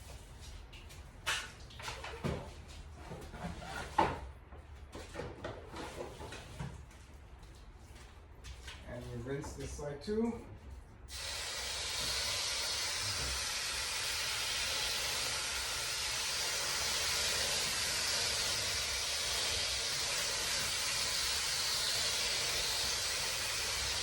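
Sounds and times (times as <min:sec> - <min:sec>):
hose spraying water: 0:11.1 - 0:24.0.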